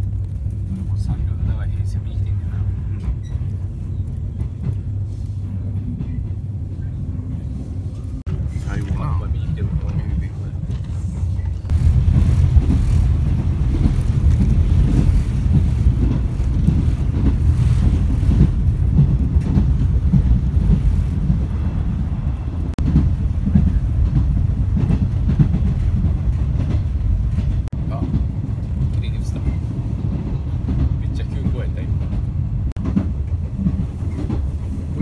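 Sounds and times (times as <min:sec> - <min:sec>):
train wheels rumbling: 0:00.0 - 0:35.0
train car jolts: 0:11.7 - 0:21.2.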